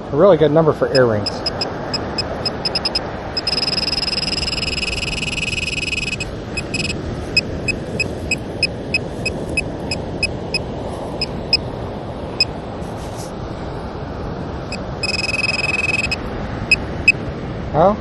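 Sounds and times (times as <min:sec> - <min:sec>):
metal detector beeps: 0:00.9 - 0:10.6, 0:14.7 - 0:16.8.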